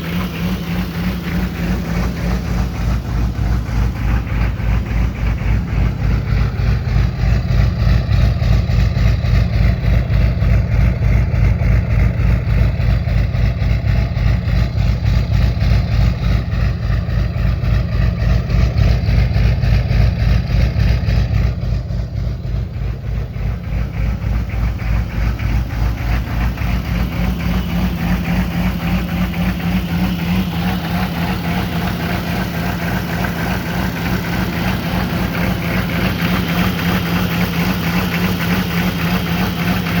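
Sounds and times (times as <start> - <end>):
diesel engine idling with lope: 0.0 - 40.0.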